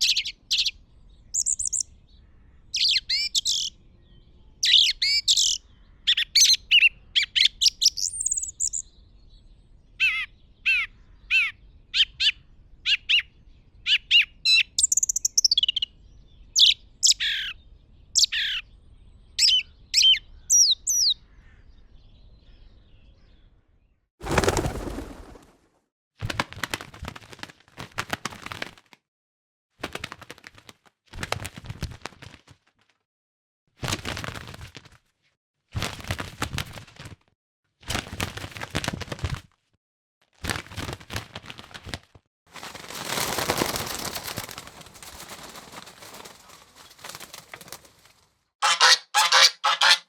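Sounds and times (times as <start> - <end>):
songbird chirps and trills: 0.0 - 23.5.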